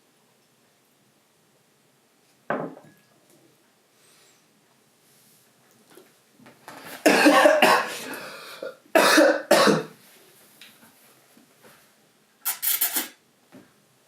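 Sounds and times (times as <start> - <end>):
person coughing hard: 7.0 - 9.9.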